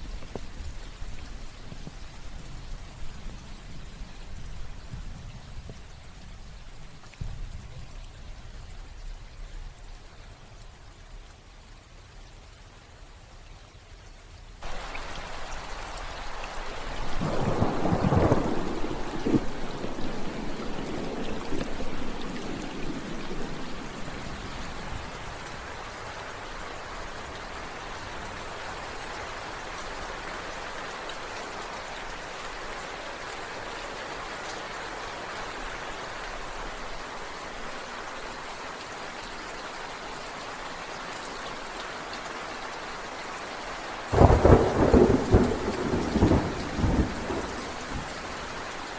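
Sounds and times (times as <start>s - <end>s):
steady rain falling: 0.0s - 48.9s
thunder rumbling: 14.6s - 25.2s, 44.1s - 48.2s.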